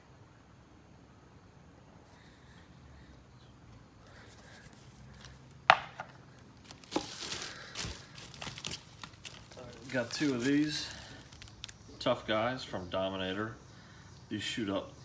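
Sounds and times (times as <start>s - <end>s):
packaging rustling: 4.2s - 11.8s
sharp knock on box: 5.7s - 6.2s.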